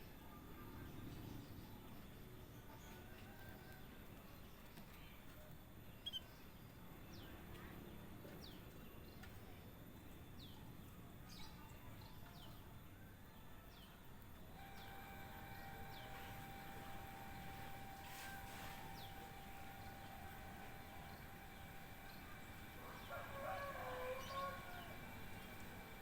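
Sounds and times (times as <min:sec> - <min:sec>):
bird chirps: 0:06.0 - 0:06.5.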